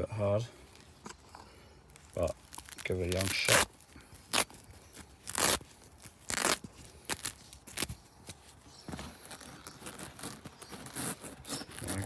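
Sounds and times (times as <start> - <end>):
fabric ripping and rustling: 2.1 - 8.0, 9.1 - 12.0.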